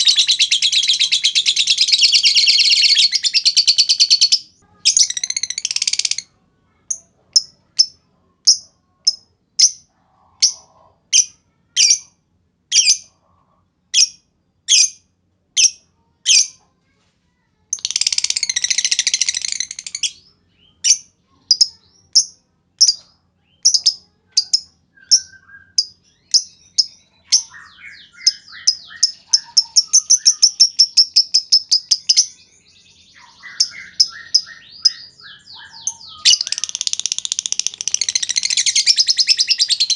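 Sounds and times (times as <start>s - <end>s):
lovebird rapid chatter: 0.0s - 6.2s, 17.8s - 20.2s, 33.3s - 39.9s
lovebird chirping: 0.0s - 12.1s, 17.8s - 39.9s.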